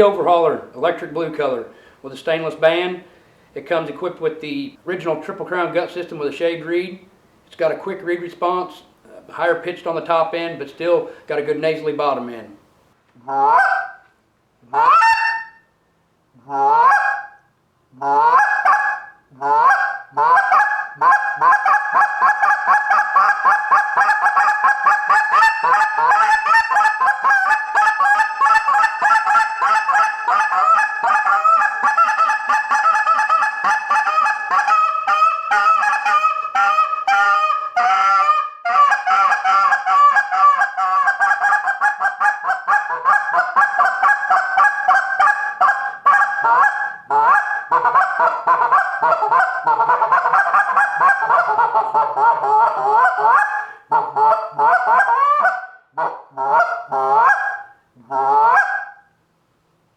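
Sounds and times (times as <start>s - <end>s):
goose call honks and clucks: 13.2s - 15.6s, 16.4s - 59.1s.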